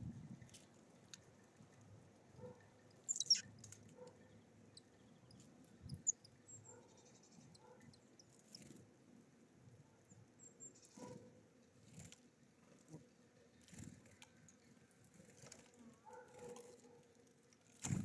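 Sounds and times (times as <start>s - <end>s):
small birds chirping: 2.4s - 8.8s.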